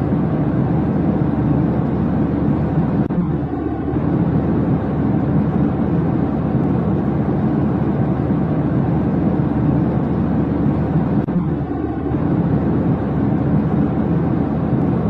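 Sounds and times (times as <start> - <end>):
jet airliner cabin noise: 0.0 - 15.0.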